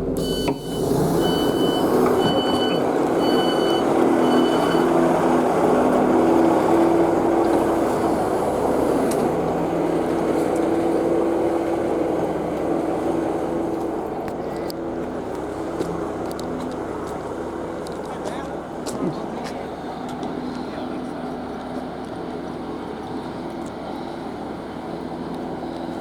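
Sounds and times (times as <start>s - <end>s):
diesel engines running: 0.0s - 26.0s
train door warning beeps: 0.2s - 5.1s.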